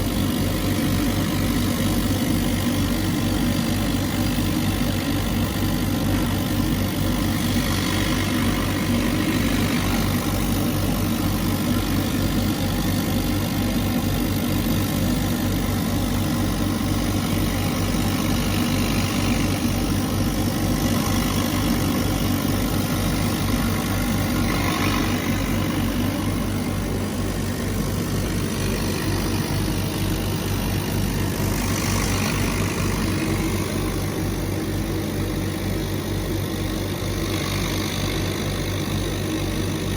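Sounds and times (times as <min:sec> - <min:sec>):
laser cutter machine hum: 0:00.0 - 0:39.9
whirring of moving head: 0:00.0 - 0:39.9.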